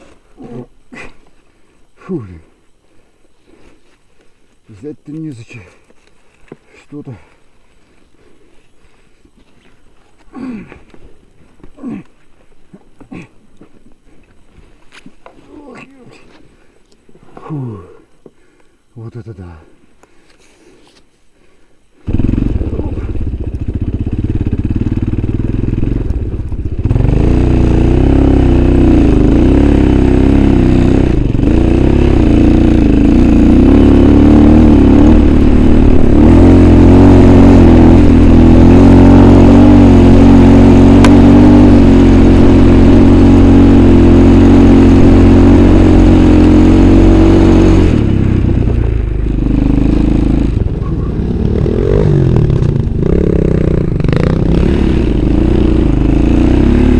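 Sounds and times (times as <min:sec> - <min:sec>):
motorcycle engine revving: 0:22.0 - 0:56.9.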